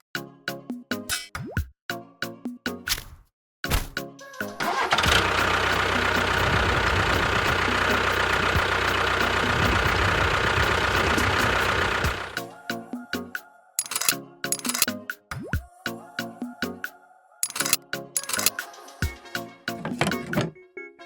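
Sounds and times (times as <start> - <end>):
motor humming: 5.1 - 12.4.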